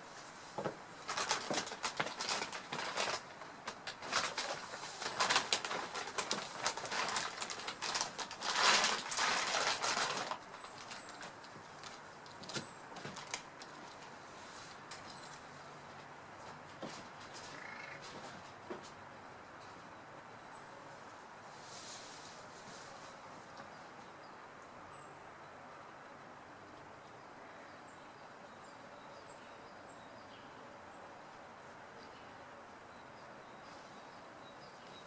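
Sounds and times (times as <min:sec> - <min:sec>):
leaves rustling: 0:00.0 - 0:18.7, 0:20.6 - 0:24.1
faint bird chirps: 0:17.5 - 0:18.0.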